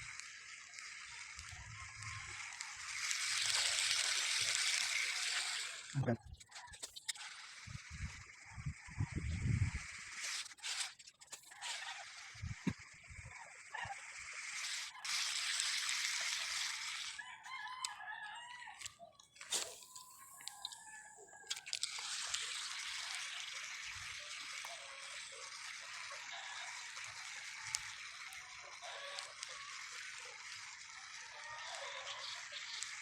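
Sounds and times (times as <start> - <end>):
rooster crowing: 17.2 - 19.0.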